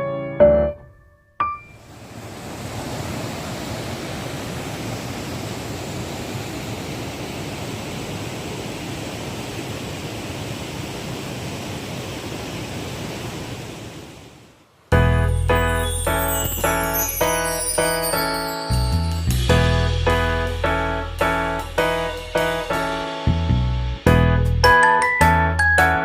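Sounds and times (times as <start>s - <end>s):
mountain stream rushing: 1.8s - 14.9s.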